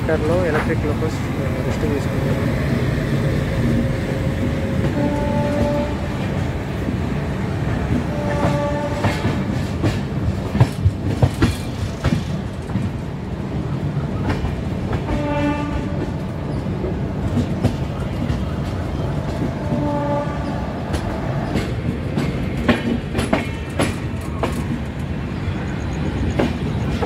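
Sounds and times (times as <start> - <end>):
wheels clattering over rail joints: 0.0 - 7.0, 7.7 - 13.2, 14.1 - 25.3
train rumbling: 0.0 - 27.0
train horn blasts: 4.8 - 6.1, 8.1 - 9.5, 15.1 - 16.0, 19.6 - 20.6.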